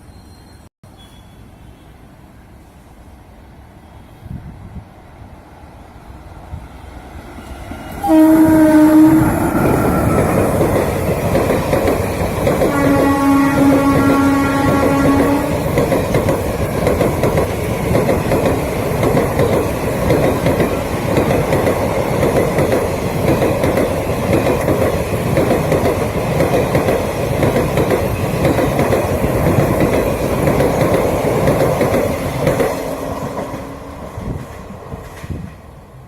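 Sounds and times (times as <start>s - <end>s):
train wheels clattering over rails: 7.5s - 35.7s.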